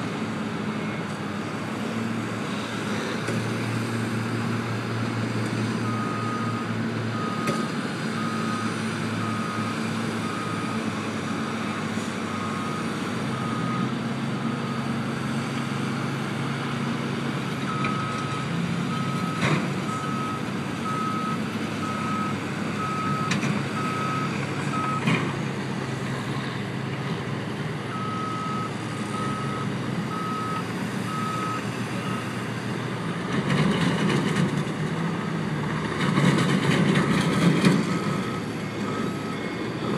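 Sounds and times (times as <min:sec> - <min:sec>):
diesel engine hum: 0:00.0 - 0:39.9
vehicle backup alarm beeping: 0:05.8 - 0:07.6, 0:08.2 - 0:10.8, 0:12.3 - 0:14.0, 0:17.7 - 0:25.1, 0:27.9 - 0:32.4, 0:37.0 - 0:39.6.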